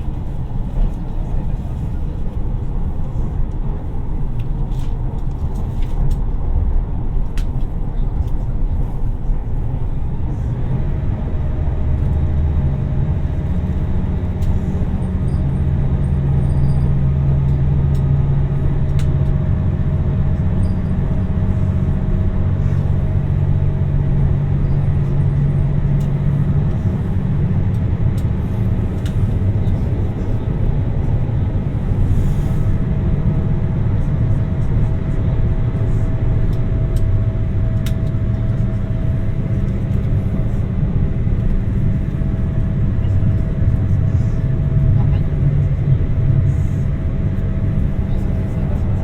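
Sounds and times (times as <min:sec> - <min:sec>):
engine hum with higher tone: 0:00.0 - 0:49.0
train wheels rumbling on rails: 0:00.0 - 0:49.0.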